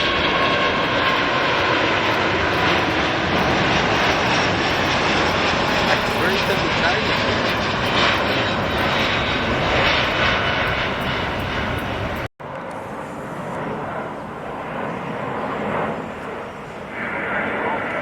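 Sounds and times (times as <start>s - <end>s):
jet engine roar: 0.0s - 18.0s
quieter jet noise: 0.0s - 18.0s.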